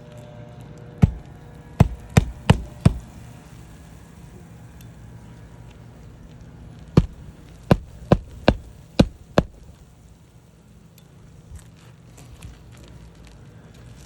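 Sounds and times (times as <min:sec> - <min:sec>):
hammer striking roofing nail: 0:01.0 - 0:03.2, 0:07.0 - 0:09.8.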